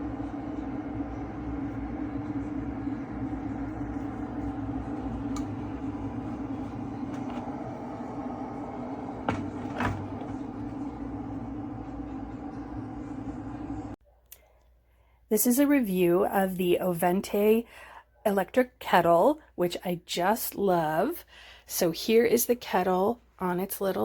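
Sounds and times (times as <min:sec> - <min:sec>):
electric kettle heating water: 0:00.0 - 0:14.0
kettle clicks: 0:02.1 - 0:12.6.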